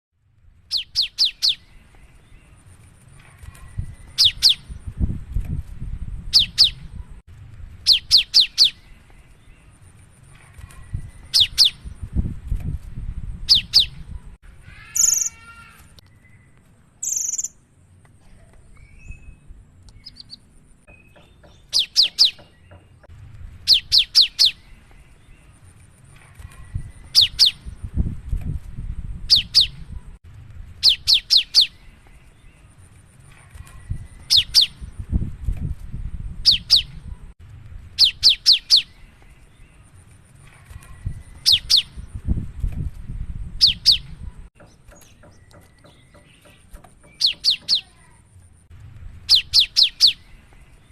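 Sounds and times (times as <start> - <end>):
harsh bird calls: 13.5 - 17.6, 43.6 - 48.2, 49.3 - 50.9
bird singing high sharp notes: 16.2 - 17.6.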